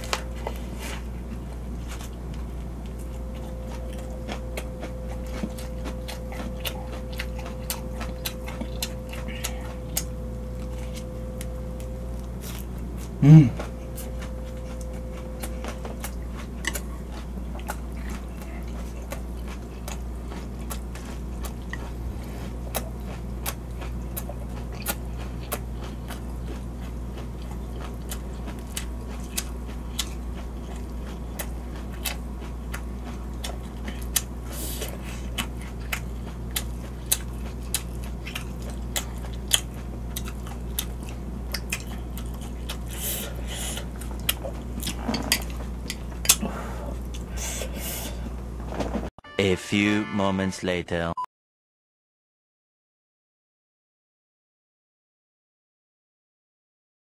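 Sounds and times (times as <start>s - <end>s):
wet chewing with mouth clicks: 0.0s - 47.6s
steady low hum: 0.0s - 51.2s.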